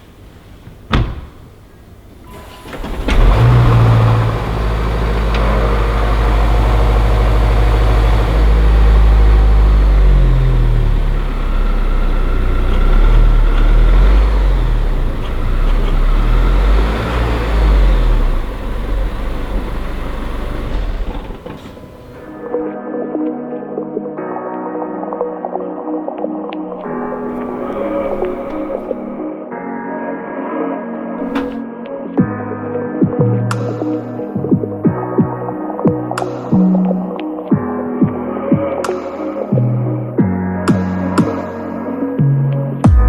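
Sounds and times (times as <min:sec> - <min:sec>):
car engine starting and revving: 0:02.3 - 0:22.5, 0:26.8 - 0:29.2, 0:31.2 - 0:31.6.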